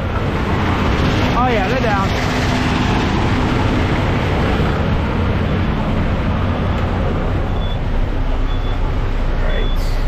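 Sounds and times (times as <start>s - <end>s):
diesel truck engine idling: 3.4s - 10.0s.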